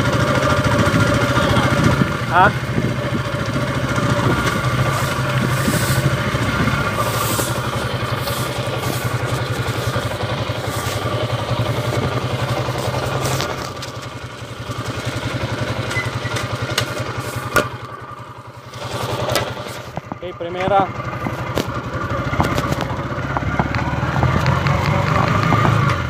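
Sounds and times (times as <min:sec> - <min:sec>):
motorcycle engine running: 0:00.0 - 0:26.0
transmission droning: 0:00.6 - 0:17.0.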